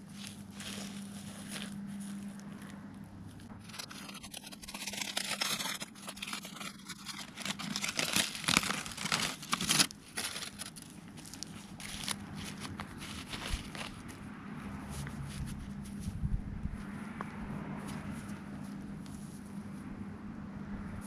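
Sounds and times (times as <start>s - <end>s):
crinkling and tearing handling noise: 0.0s - 17.0s.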